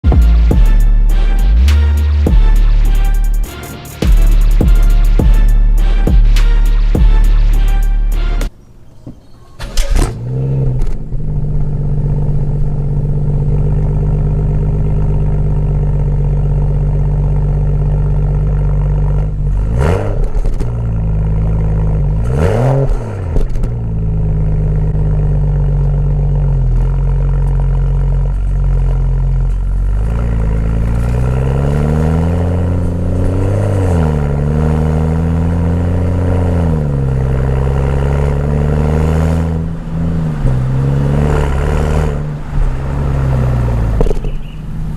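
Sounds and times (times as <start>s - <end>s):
engine revving: 0.0s - 8.5s, 9.7s - 44.9s
car exhaust idling: 10.3s - 22.3s, 23.4s - 31.7s, 34.2s - 44.9s.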